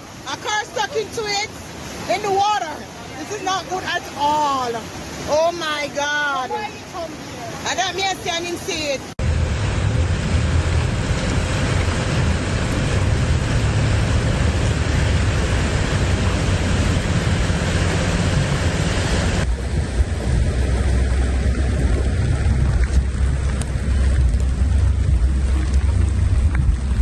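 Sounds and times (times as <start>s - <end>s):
floodwater rushing: 0.0s - 27.0s.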